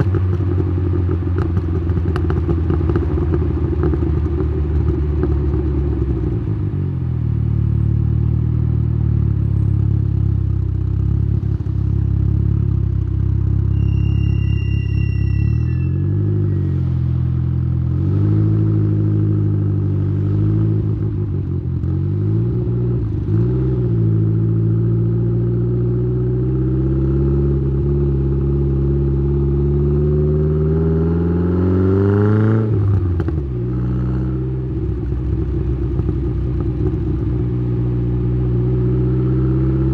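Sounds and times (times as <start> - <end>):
high turbo whistle: 13.6 - 16.9.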